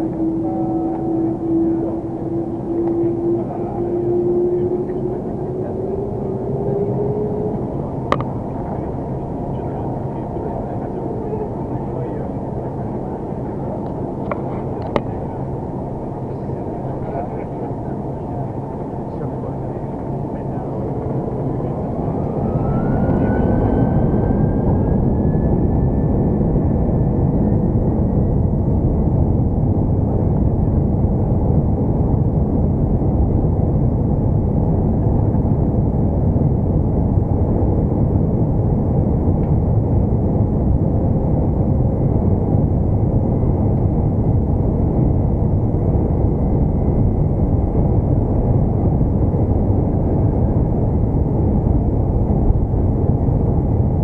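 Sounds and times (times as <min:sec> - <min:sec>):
jet engines spooling up: 0:00.0 - 0:30.6
loud jet engine roar: 0:00.0 - 0:54.0.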